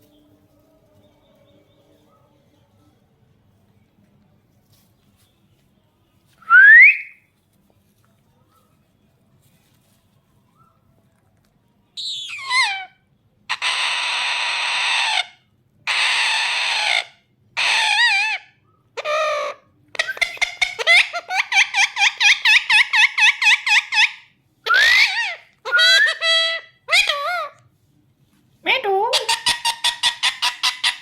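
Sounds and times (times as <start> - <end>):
parrot screeching and squawking: 12.0 - 27.6, 28.9 - 31.0.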